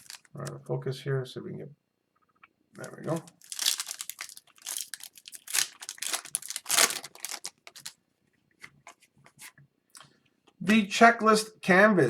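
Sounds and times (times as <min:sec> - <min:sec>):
card packs crinkling and rustling: 0:00.0 - 0:00.5, 0:02.8 - 0:08.0.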